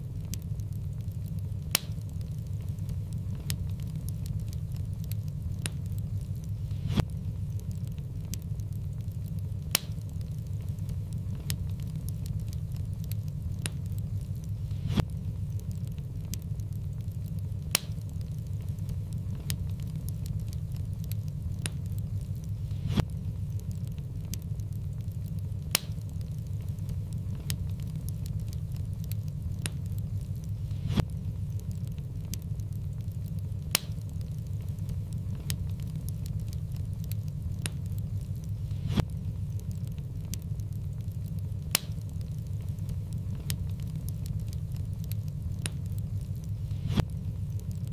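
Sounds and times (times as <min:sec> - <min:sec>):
sharp fire pops: 0:00.0 - 0:47.9
steady low rumble: 0:00.0 - 0:47.9
wood fire crackling: 0:00.0 - 0:47.9.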